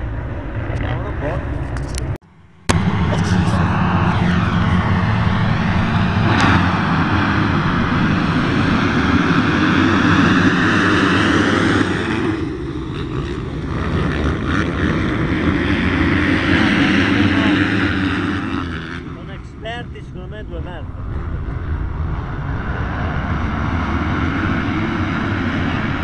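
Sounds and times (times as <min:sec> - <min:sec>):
motocross bikes racing: 0:02.7 - 0:22.0, 0:22.9 - 0:26.0.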